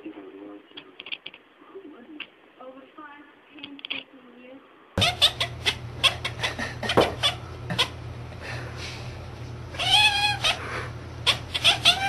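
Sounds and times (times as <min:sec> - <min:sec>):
cat meowing: 0:05.0 - 0:06.3, 0:09.8 - 0:10.6, 0:11.2 - 0:12.0
cat chirping: 0:05.0 - 0:08.0, 0:09.7 - 0:12.0.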